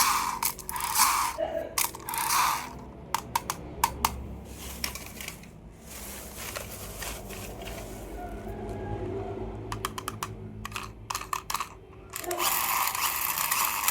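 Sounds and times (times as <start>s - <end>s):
sharp plastic clicks and taps: 3.1s - 4.2s, 9.7s - 11.7s
packaging rustling and tearing: 4.5s - 8.5s.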